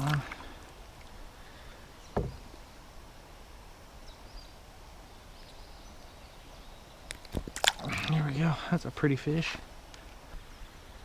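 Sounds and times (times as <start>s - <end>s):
faint steady hiss: 0.0s - 11.0s
low thump: 2.1s - 2.5s.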